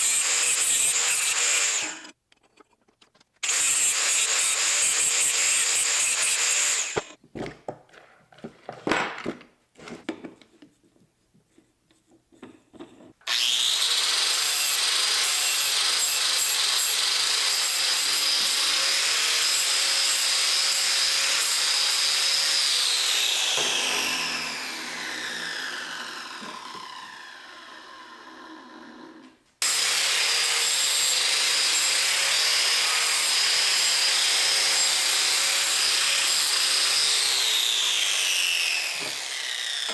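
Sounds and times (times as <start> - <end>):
electric power tool whining: 13.2 - 39.9.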